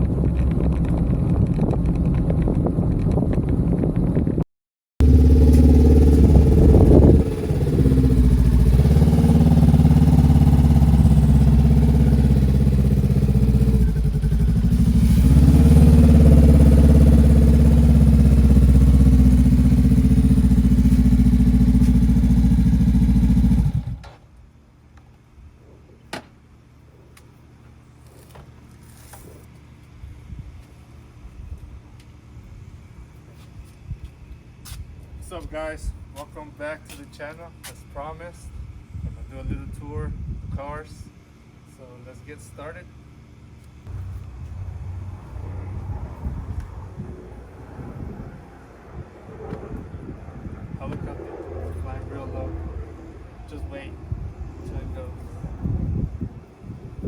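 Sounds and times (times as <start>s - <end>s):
vehicle engine running: 5.0s - 24.0s, 43.8s - 57.0s.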